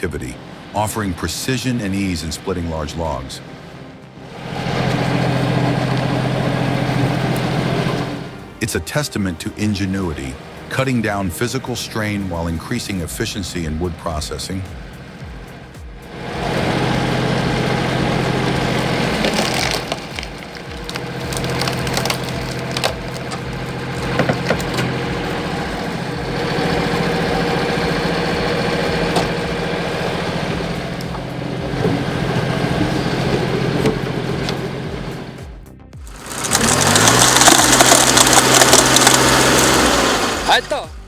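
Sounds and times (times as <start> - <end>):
engine running steadily: 0.0 - 8.6, 9.4 - 41.0
wood cracking and splintering: 18.2 - 28.0, 36.1 - 40.6.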